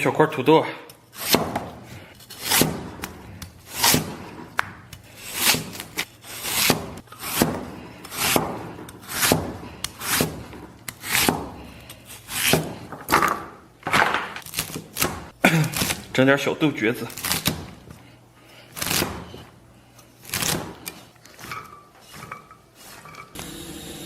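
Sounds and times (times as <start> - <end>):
peeler scraping potato: 1.0 - 12.8, 18.7 - 23.4.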